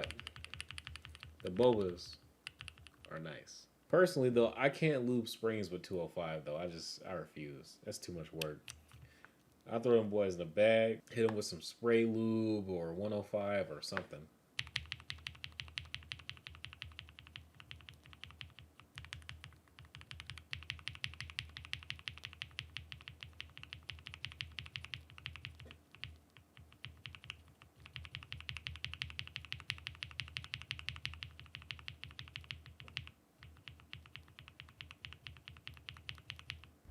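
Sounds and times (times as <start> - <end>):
mechanical keyboard typing: 0.0 - 3.2, 14.6 - 36.7.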